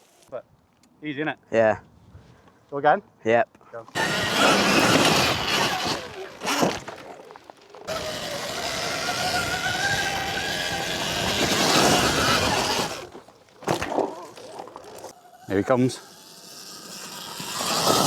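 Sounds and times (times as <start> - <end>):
electric motor whine: 3.9 - 7.0, 7.8 - 13.2, 15.1 - 18.0
wind and tyre noise: 3.9 - 13.5.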